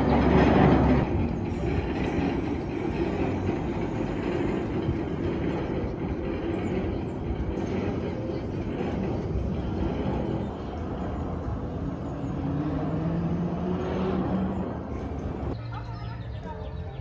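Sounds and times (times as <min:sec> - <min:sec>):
miniature train wheels on rails: 0:00.0 - 0:11.9.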